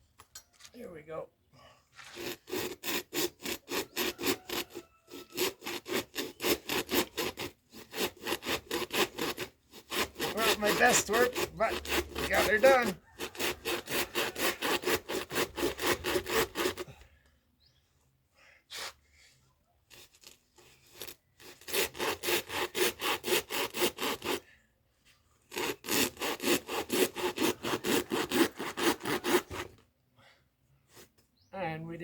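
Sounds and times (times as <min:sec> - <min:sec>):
saw cutting coconut: 0:02.0 - 0:17.0, 0:19.9 - 0:24.5, 0:25.4 - 0:29.8.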